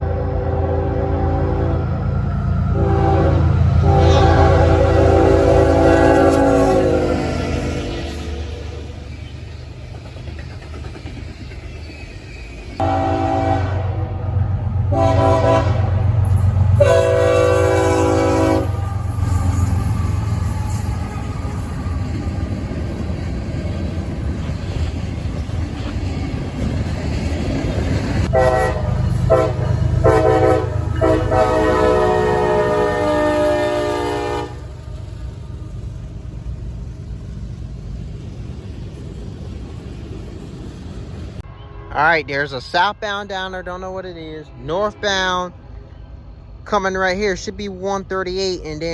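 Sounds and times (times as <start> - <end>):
locomotive air horn blasts: 0.0 - 2.0, 2.7 - 8.6, 12.8 - 19.7, 28.3 - 34.8
train rumbling: 0.0 - 48.9.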